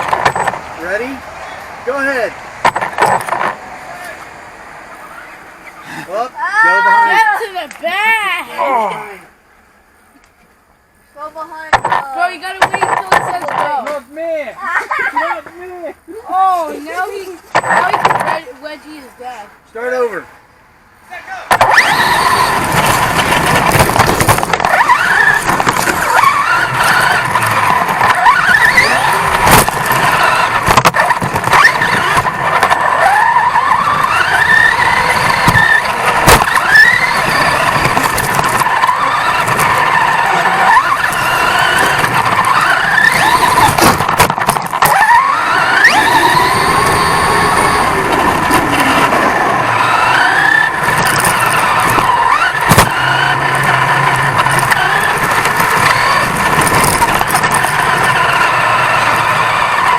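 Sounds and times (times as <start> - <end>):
rattling and knocks from bouncing: 0.0 - 0.6, 2.6 - 3.6, 11.7 - 13.9, 17.5 - 18.4, 21.5 - 33.0, 33.9 - 46.9, 50.4 - 58.4
rc truck motor whine: 21.5 - 59.9.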